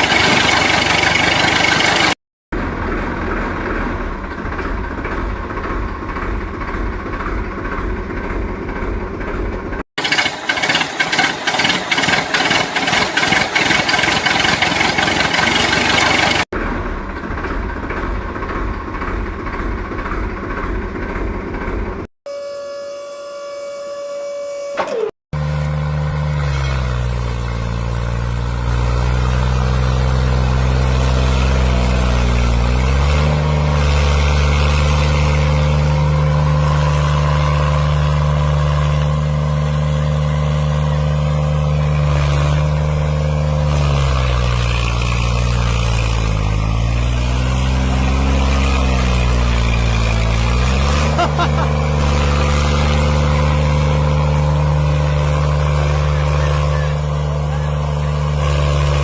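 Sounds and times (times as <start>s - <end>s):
tractor engine running: 0.0s - 22.1s, 24.8s - 59.0s
horn-like tone: 22.3s - 25.1s.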